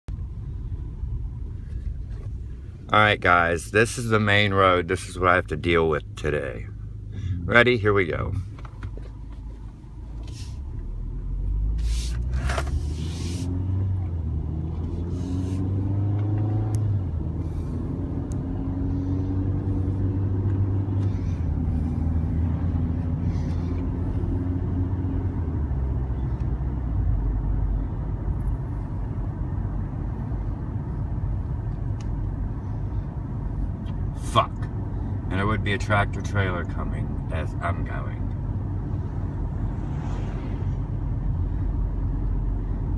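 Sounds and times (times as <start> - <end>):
vehicle engine accelerating: 6.9 - 34.1, 36.4 - 42.9.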